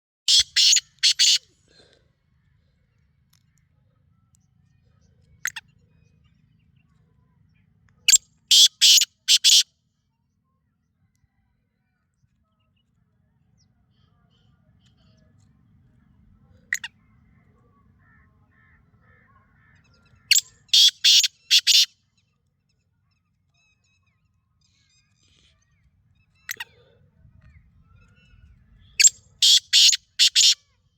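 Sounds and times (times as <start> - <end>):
bird harsh notes: 0.3 - 1.4, 8.5 - 9.6, 20.3 - 21.9, 29.0 - 30.6.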